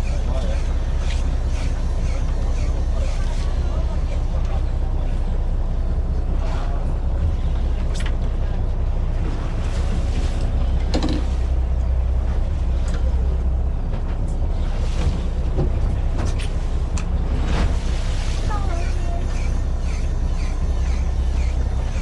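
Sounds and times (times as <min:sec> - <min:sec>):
boat engine rumble: 0:00.0 - 0:22.0.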